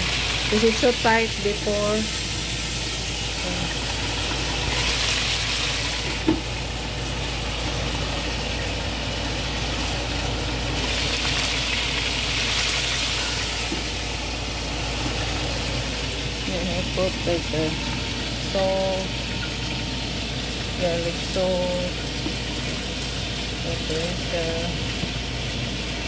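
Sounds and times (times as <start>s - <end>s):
chicken frying in oil: 0.0s - 26.0s
low steady hum: 0.0s - 26.0s.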